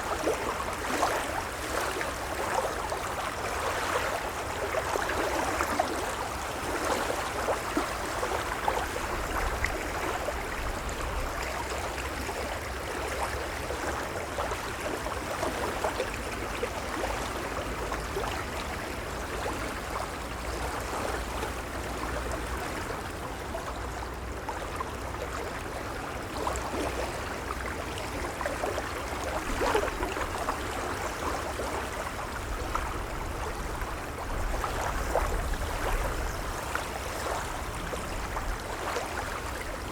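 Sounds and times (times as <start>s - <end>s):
small waves lapping on shore: 0.0s - 39.9s.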